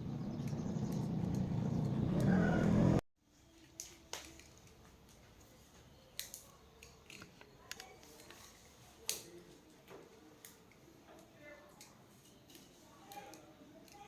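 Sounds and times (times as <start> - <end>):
small tools clicking and tapping: 3.7 - 14.0.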